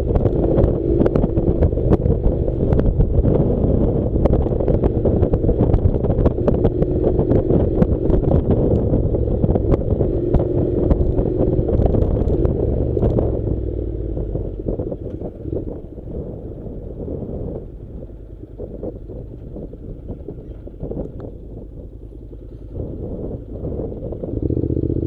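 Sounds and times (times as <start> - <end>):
motorcycle engine running: 0.0 - 25.0
gravel clattering under tyres: 14.6 - 23.8.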